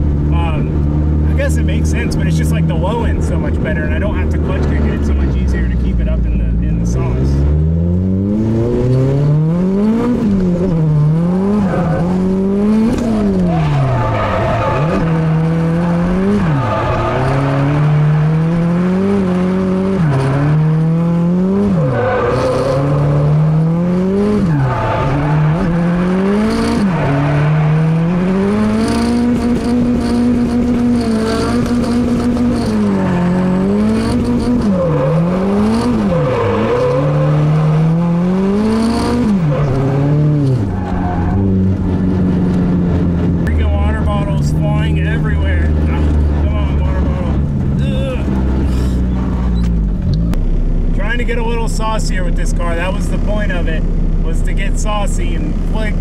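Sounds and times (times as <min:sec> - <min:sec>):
car engine revving: 0:00.0 - 0:56.0
tyres squealing: 0:11.5 - 0:18.7, 0:30.9 - 0:37.8.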